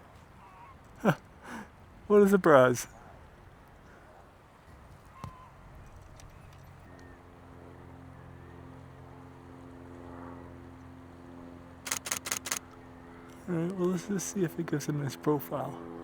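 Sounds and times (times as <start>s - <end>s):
camera shutter clicks: 11.9s - 12.6s
engine drone: 11.9s - 12.6s.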